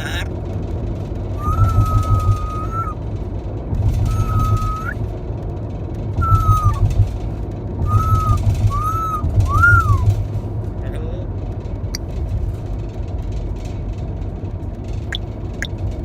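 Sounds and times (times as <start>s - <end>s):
parrot chirp: 0.0s - 0.3s, 1.4s - 3.0s, 4.0s - 5.0s, 6.2s - 6.8s, 7.8s - 10.1s
steady low rumble: 0.0s - 16.0s
parrot whistling speech-like notes: 1.4s - 3.0s, 4.1s - 5.0s, 6.2s - 6.8s, 7.9s - 10.0s.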